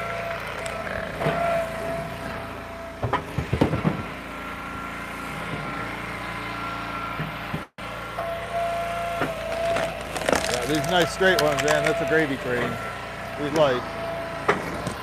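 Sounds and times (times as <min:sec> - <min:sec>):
log splitter engine running: 0:00.0 - 0:15.0
wood cracking and knocking: 0:09.4 - 0:12.0.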